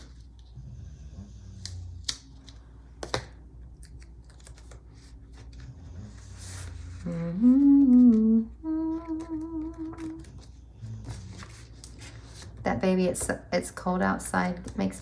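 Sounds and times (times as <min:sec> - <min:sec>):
paper and stickers handled: 0:01.6 - 0:08.3, 0:08.9 - 0:15.0
woman humming a tune: 0:07.0 - 0:10.4.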